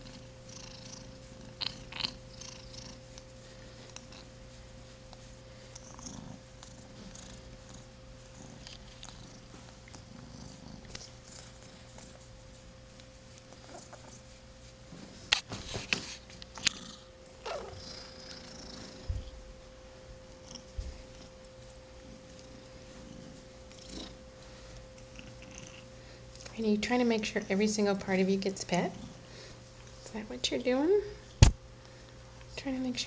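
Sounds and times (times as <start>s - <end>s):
kitten purring: 0.0s - 3.3s, 3.9s - 4.4s, 5.1s - 12.2s, 13.5s - 14.2s, 16.5s - 19.4s, 23.0s - 24.2s, 25.0s - 25.9s.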